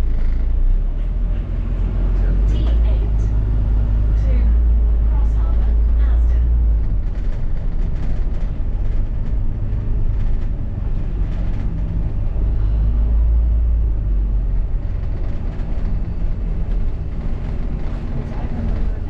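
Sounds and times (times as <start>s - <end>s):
bus engine and road rumble: 0.0s - 19.0s
light rattles: 2.5s - 13.5s.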